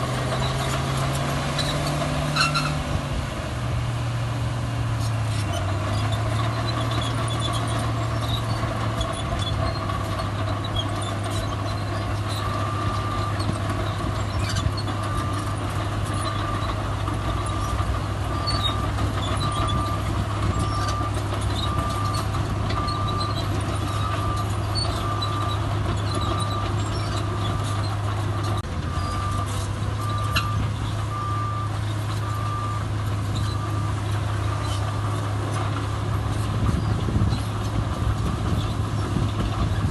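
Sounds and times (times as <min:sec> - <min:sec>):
heavy diesel machinery running: 0:00.0 - 0:39.9
reversing alarm beeping: 0:28.9 - 0:34.0.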